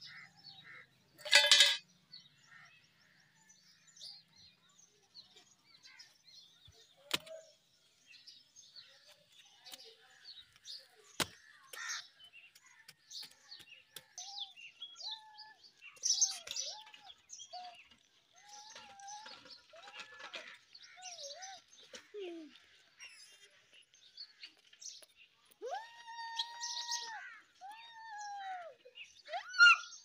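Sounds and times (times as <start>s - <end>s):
small birds chirping: 0.0s - 30.0s
mid-pitched bird calls: 8.8s - 30.0s.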